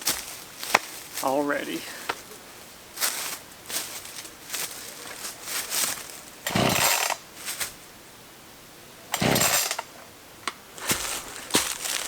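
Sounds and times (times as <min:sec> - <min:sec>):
chainsaw pull-start cord whirring: 0:06.4 - 0:07.3, 0:09.1 - 0:09.9.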